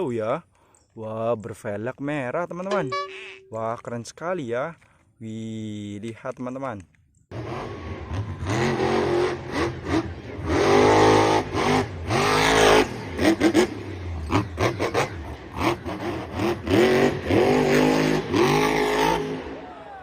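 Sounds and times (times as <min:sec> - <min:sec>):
car engine revving: 0:07.3 - 0:19.6.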